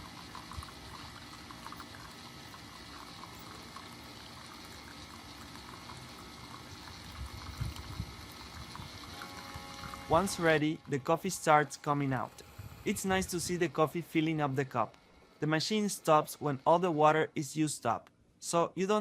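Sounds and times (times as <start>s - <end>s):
coffee maker hissing: 0.0s - 14.4s.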